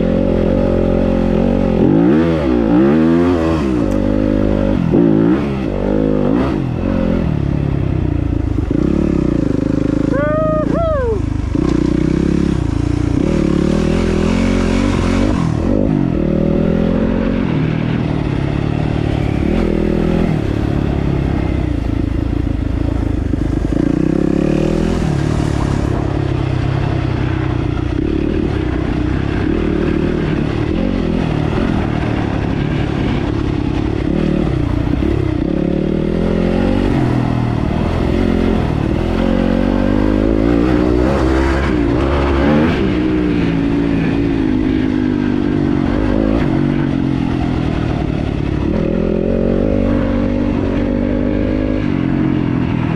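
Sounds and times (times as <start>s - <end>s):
dirt bike engine revving: 0.0s - 7.6s, 8.3s - 22.4s, 23.0s - 52.9s.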